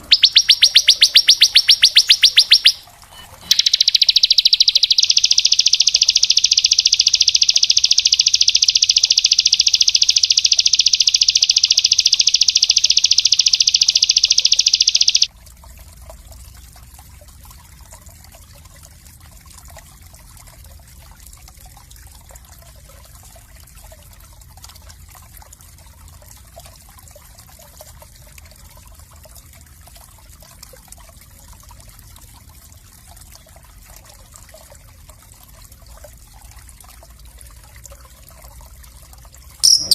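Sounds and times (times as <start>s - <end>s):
songbird high trill: 0.0s - 15.3s, 39.6s - 39.9s
faint trickle of running water: 0.0s - 39.9s.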